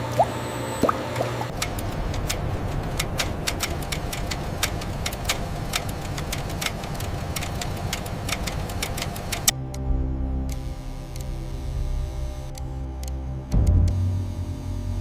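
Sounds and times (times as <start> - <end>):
factory machinery humming: 0.0 - 15.0
sharp machine clicks and clacks: 1.5 - 9.5.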